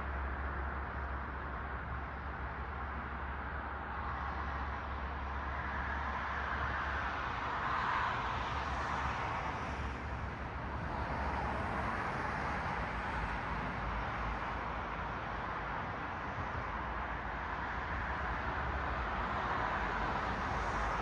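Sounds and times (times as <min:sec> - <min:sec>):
cars passing: 0:05.6 - 0:21.0.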